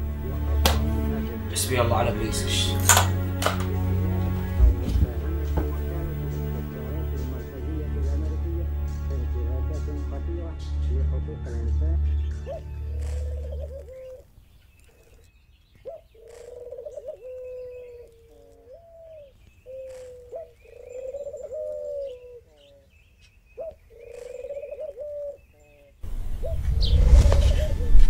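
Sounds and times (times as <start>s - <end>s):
doves cooing: 12.4s - 23.0s, 23.6s - 26.6s.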